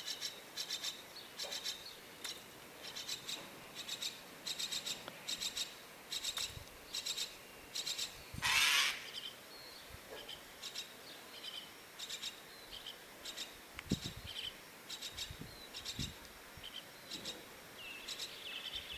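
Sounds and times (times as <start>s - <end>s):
chick raspy begging calls: 8.4s - 9.2s.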